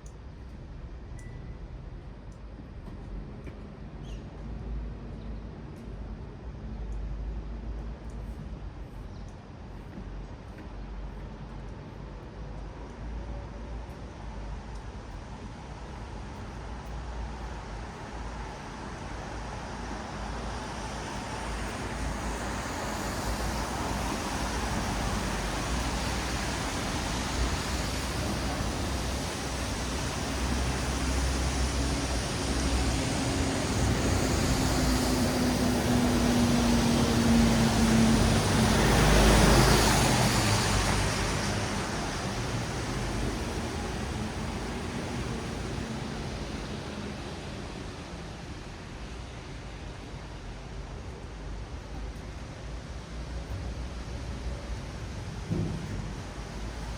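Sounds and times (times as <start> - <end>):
tyres hissing on wet road: 13.0 - 56.9
passing vehicle engine hum: 17.6 - 48.6.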